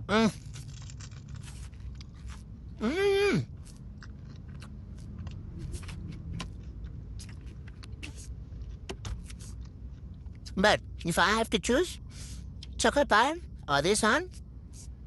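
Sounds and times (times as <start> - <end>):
low steady hum: 0.0 - 15.0
crunchy chewing: 0.2 - 11.1
short vocal sound: 2.8 - 3.5.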